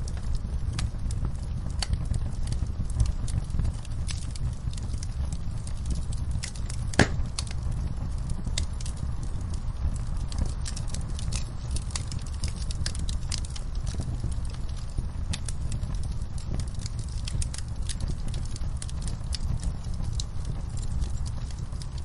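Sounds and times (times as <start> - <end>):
steady low rumble: 0.0 - 22.0
wood fire crackling: 0.0 - 22.0
loud pop of fire: 5.8 - 21.8.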